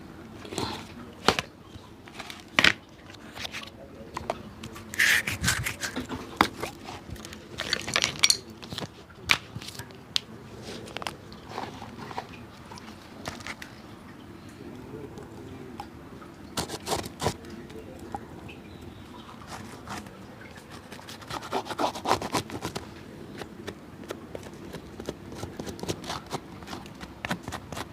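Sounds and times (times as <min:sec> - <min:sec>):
shoe being scraped by hand: 0:04.9 - 0:07.1, 0:16.6 - 0:17.4, 0:20.8 - 0:22.8.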